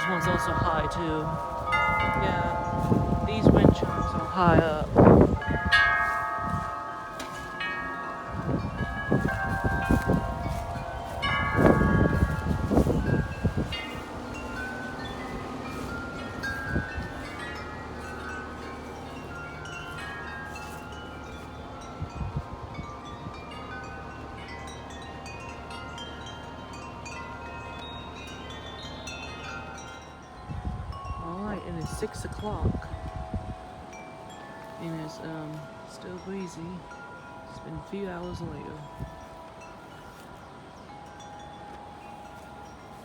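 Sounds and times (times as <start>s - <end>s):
wind buffeting microphone: 0.0s - 43.0s
wind chimes ringing: 0.0s - 43.0s.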